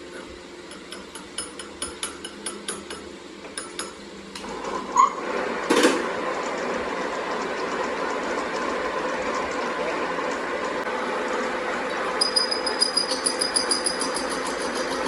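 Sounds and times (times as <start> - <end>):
hammer tapping on metal: 0.7 - 4.0, 12.2 - 15.0
machine running: 4.4 - 15.0
machine squeal: 4.9 - 5.2, 12.2 - 15.0.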